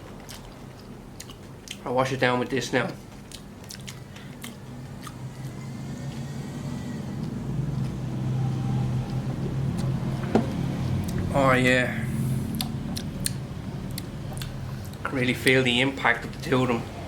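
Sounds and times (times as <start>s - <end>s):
person chewing crunchy fish: 0.0s - 1.9s, 3.0s - 6.5s, 12.5s - 15.0s
low steady hum: 0.0s - 17.0s.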